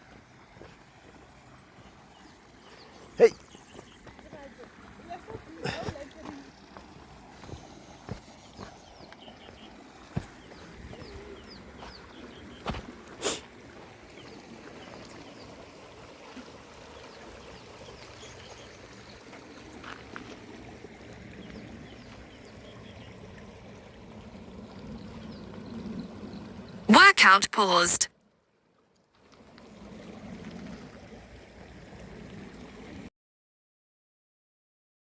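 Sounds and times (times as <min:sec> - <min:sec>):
small birds chirping: 0:01.3 - 0:12.8.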